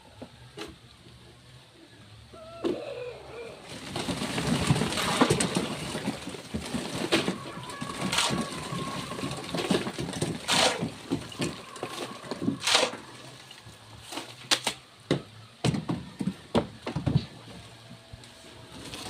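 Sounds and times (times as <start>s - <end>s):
rasping scrapes: 10.5s - 10.9s.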